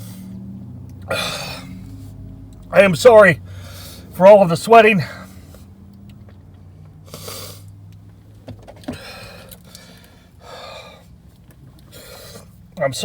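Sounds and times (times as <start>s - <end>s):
low steady hum: 0.0s - 13.0s
man breathing hard: 1.1s - 2.2s, 3.4s - 4.2s, 5.0s - 5.8s, 7.0s - 7.8s, 8.8s - 12.6s.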